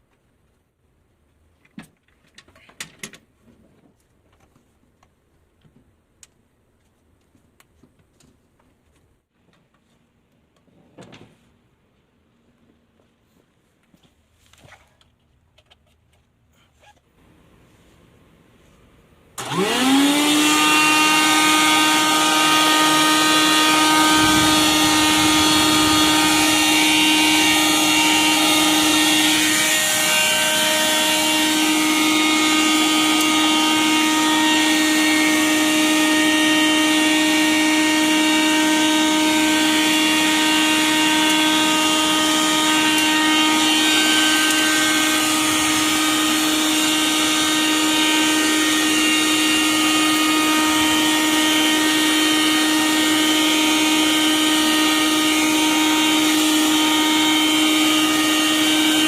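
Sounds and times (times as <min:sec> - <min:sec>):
vacuum cleaner motor whining: 0:19.4 - 0:59.0.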